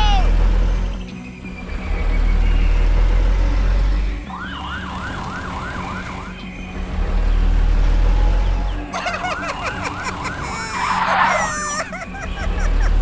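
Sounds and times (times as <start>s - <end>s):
deep vehicle rumble: 0.0s - 4.4s, 6.0s - 10.4s, 12.0s - 13.0s
siren yelping: 9.0s - 12.8s.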